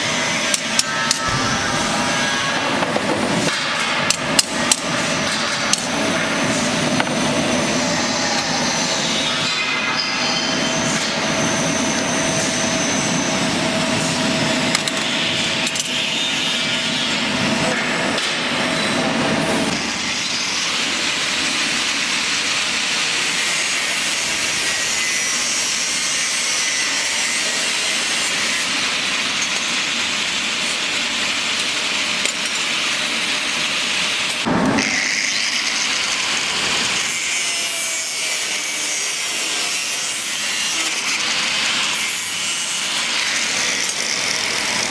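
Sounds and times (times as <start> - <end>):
power tool grinding metal: 31.6 - 44.9.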